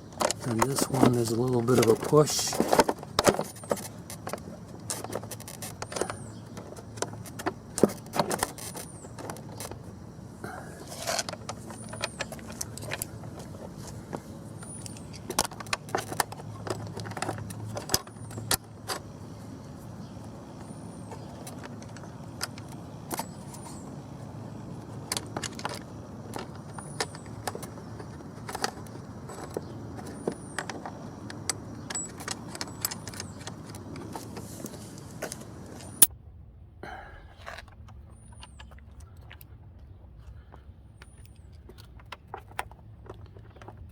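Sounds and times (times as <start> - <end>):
metal hardware clinking: 31.4 - 33.7.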